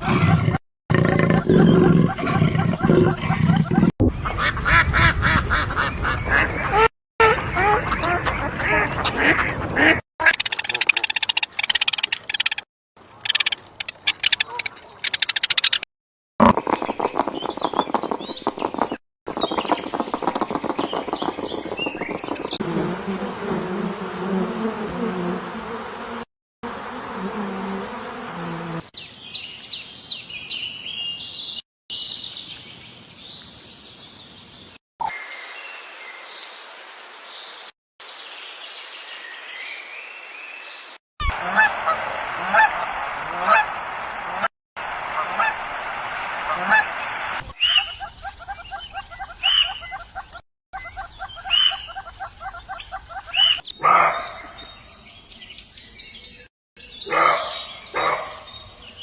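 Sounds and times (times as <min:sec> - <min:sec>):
harsh bird calls: 0:04.2 - 0:11.8, 0:41.2 - 0:55.4
small birds chirping: 0:16.6 - 0:22.6, 0:45.1 - 0:59.0
steady outdoor hiss: 0:35.1 - 0:48.2
bird chirping rapidly: 0:46.5 - 0:54.9.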